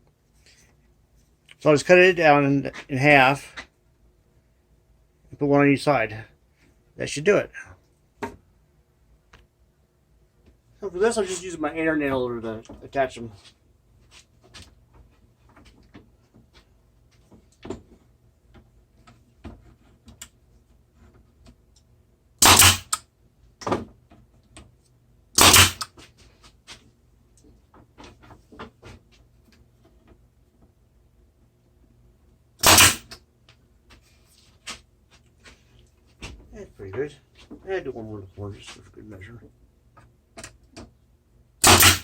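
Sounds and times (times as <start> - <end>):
nail gun firing: 22.4 - 23.0, 25.4 - 25.9, 32.6 - 33.2, 41.6 - 42.0.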